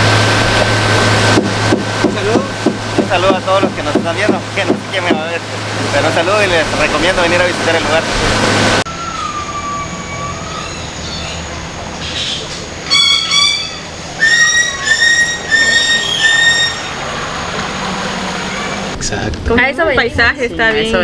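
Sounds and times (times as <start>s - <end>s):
bird falling whistle: 8.9s - 11.4s, 12.8s - 16.9s
bird short repeated notes: 12.8s - 16.9s.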